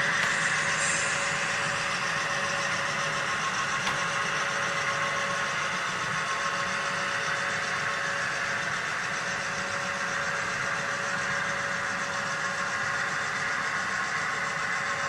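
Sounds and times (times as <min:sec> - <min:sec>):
thin whine: 0:00.0 - 0:07.1
model train mechanical hum: 0:00.0 - 0:15.0.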